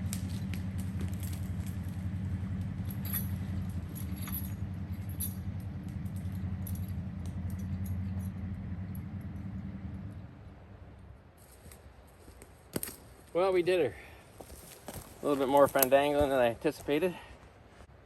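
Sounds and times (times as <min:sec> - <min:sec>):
vehicle engine running: 0:00.0 - 0:11.2
metallic clinks and rattles: 0:00.2 - 0:09.6.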